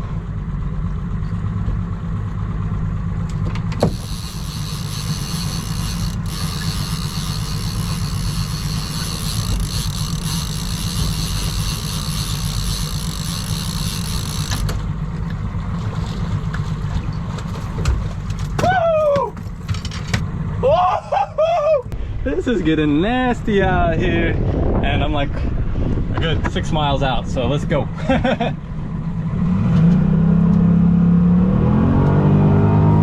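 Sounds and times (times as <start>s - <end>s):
outboard motor running: 0.1s - 20.4s.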